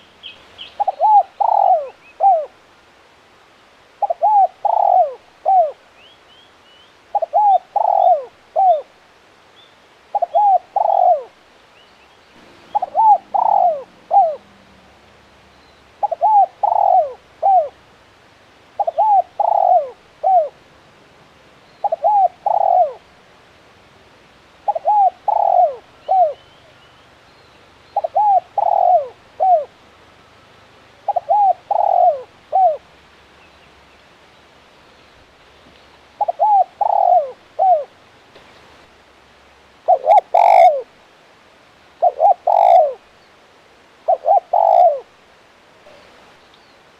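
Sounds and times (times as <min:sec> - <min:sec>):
dove cooing: 0:00.8 - 0:02.6, 0:04.0 - 0:05.8, 0:07.1 - 0:08.9, 0:10.1 - 0:11.3, 0:12.5 - 0:15.0, 0:16.0 - 0:17.8, 0:18.8 - 0:20.6, 0:21.8 - 0:23.0, 0:24.7 - 0:26.5, 0:28.0 - 0:29.7, 0:31.0 - 0:32.8, 0:36.2 - 0:37.9, 0:39.9 - 0:40.9, 0:42.0 - 0:43.0, 0:44.1 - 0:45.1
faint small bird chirps: 0:45.8 - 0:46.9.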